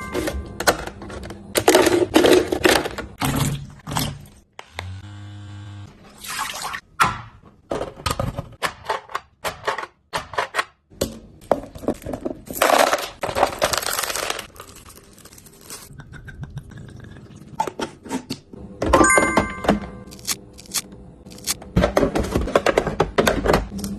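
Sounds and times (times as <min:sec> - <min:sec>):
packaging rustling: 0:12.0 - 0:15.9.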